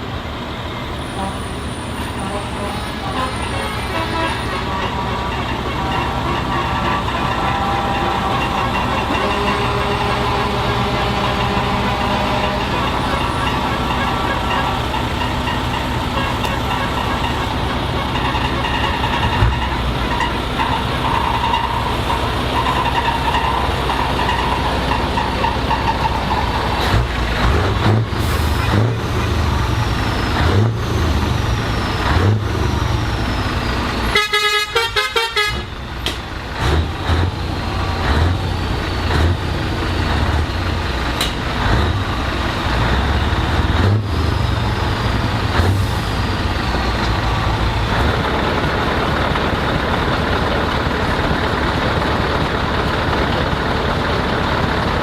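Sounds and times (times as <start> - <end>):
heavy truck engines rumbling: 0.0 - 55.0
truck horn short blasts: 1.1 - 15.0, 34.1 - 35.7.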